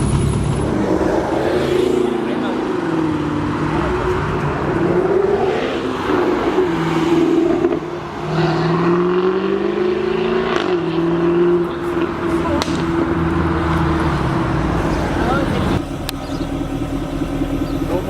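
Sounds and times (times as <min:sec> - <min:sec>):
sports car engine running: 0:10.6 - 0:18.0.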